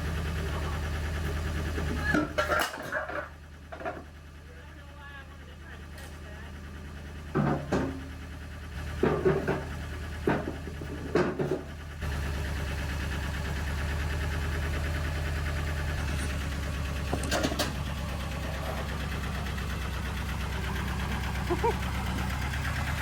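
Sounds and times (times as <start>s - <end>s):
engine droning: 0.0s - 23.0s
metal clanks and knocks: 7.3s - 8.2s, 8.9s - 11.8s, 16.0s - 19.2s.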